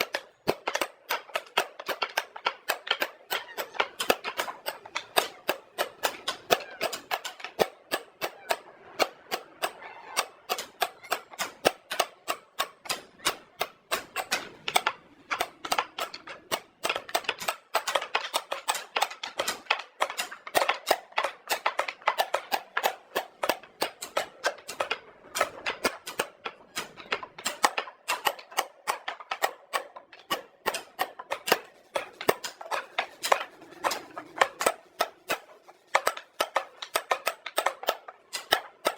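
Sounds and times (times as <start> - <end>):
tools knocking on wood: 25.4 - 38.9.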